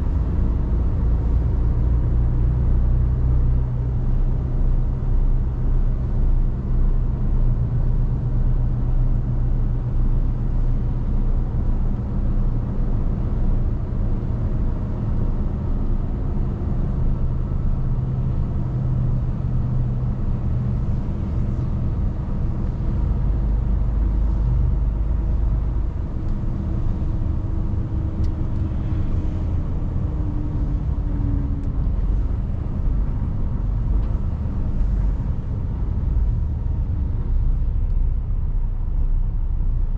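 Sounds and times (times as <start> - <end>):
deep low rumble: 0.0 - 39.9
road rumble: 0.0 - 39.9
truck diesel engine running: 16.0 - 39.9.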